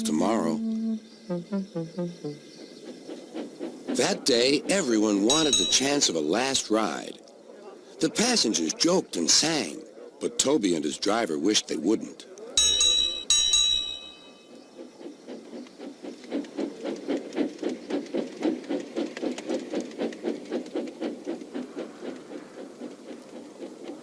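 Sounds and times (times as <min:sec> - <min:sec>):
bell ringing: 0:05.3 - 0:06.0, 0:12.6 - 0:14.5.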